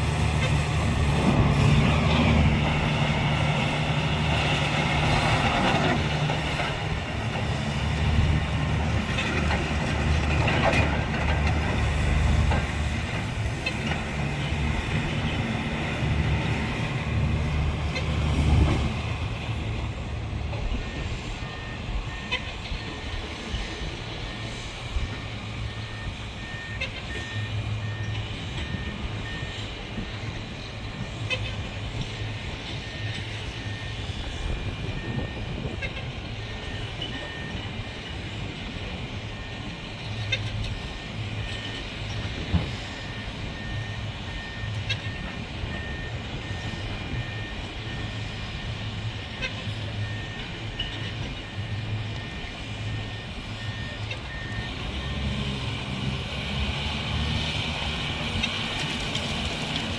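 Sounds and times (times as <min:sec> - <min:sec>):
heavy machinery running: 0:00.0 - 0:59.9
reversing alarm beeping: 0:00.1 - 0:59.9.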